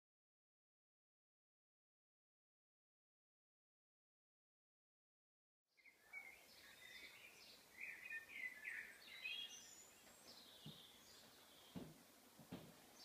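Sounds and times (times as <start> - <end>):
small birds chirping: 5.7 - 13.0
soft background hiss: 5.8 - 13.0.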